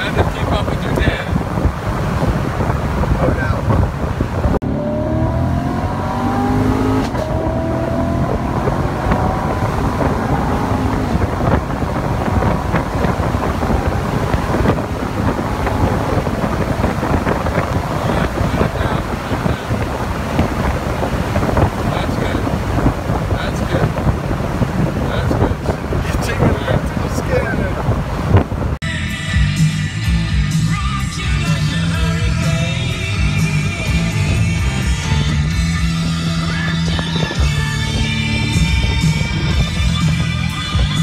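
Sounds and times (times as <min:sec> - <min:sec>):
wind noise: 0:00.0 - 0:28.8, 0:31.4 - 0:41.0
car engine accelerating: 0:00.0 - 0:28.9
road noise: 0:00.0 - 0:41.0.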